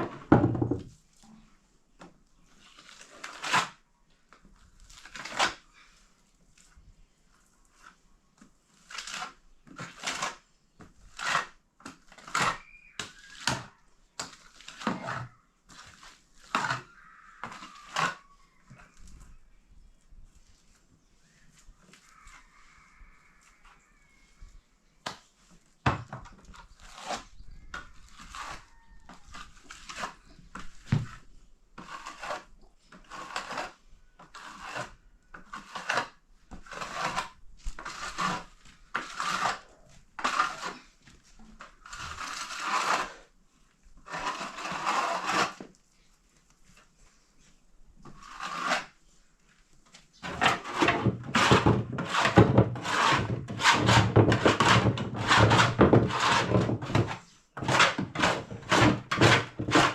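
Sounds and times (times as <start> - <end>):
hand tool scraping: 2.5 - 3.8, 11.0 - 18.9, 26.3 - 43.3, 44.0 - 45.8, 48.0 - 49.0, 50.2 - 59.9.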